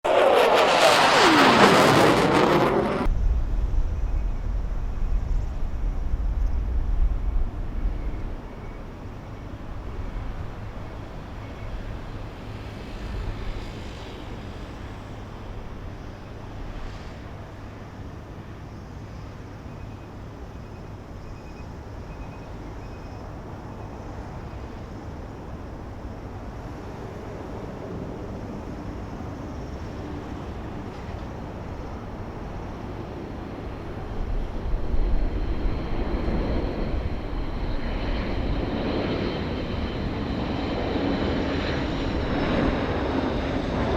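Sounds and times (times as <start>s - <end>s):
jet engines passing close: 0.0s - 43.9s
steady low rumble: 0.5s - 16.9s, 31.4s - 43.9s.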